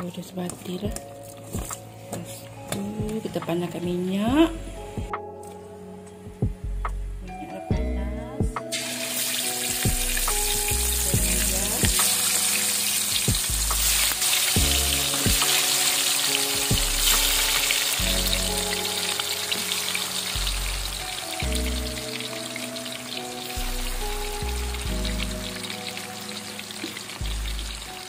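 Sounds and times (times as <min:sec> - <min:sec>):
chicken deep-frying in oil: 0:08.7 - 0:28.0.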